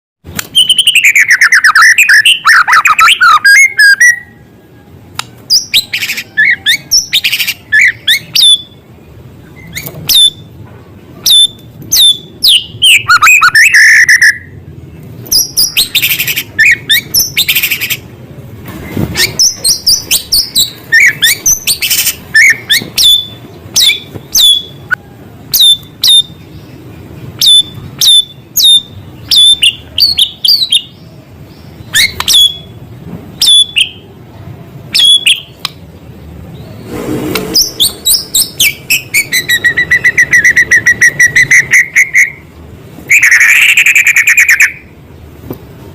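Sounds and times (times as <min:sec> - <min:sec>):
songbird singing whistled phrases: 0:00.4 - 0:04.5, 0:05.5 - 0:08.8, 0:09.5 - 0:10.5, 0:11.2 - 0:14.6, 0:15.2 - 0:18.0, 0:19.2 - 0:26.5, 0:27.4 - 0:32.8, 0:33.4 - 0:34.1, 0:34.9 - 0:35.6, 0:37.6 - 0:42.5, 0:43.1 - 0:44.9.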